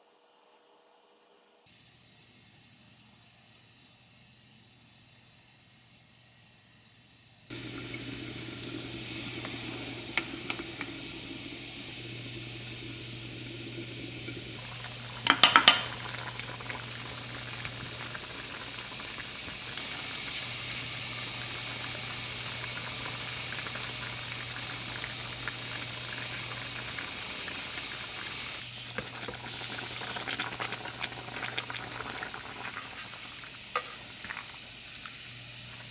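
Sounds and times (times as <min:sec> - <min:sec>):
liquid boiling in a pot: 0:07.5 - 0:35.9.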